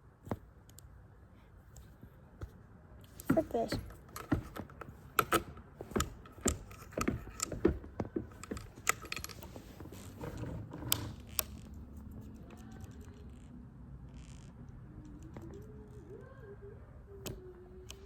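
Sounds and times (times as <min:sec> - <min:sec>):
faint steady background noise: 0:00.0 - 0:18.0
mechanical clicks and knocks: 0:03.1 - 0:11.7.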